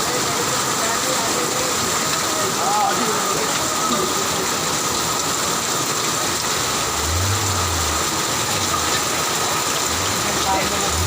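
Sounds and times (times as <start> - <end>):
heavy rain: 0.0 - 11.0
running floodwater: 0.0 - 11.0
vehicle engine low hum: 6.5 - 11.0.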